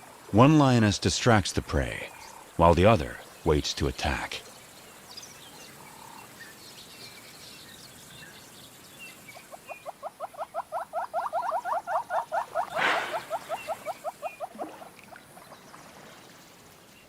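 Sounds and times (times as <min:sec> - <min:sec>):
rapid chirping animal calls: 0:09.2 - 0:15.6.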